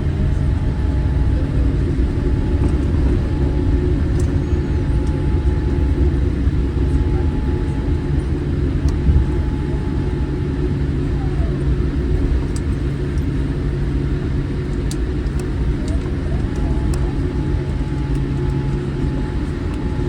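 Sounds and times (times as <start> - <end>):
aircraft cabin low rumble: 0.0 - 20.0
faint steady whine: 0.0 - 20.0.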